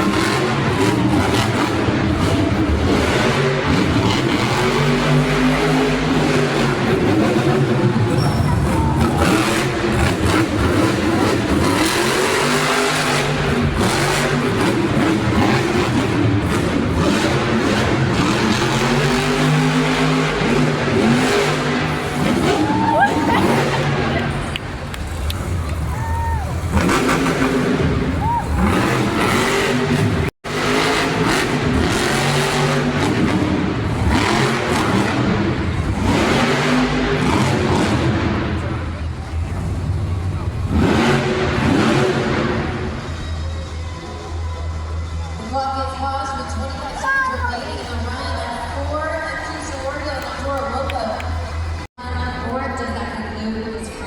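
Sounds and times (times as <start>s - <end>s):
truck engine revving hard: 0.0s - 52.3s
arena crowd roar: 0.0s - 52.5s.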